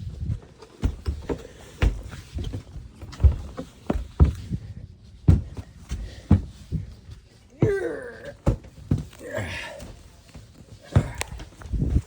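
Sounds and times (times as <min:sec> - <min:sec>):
thuds of person crawling on boards: 0:00.0 - 0:12.0.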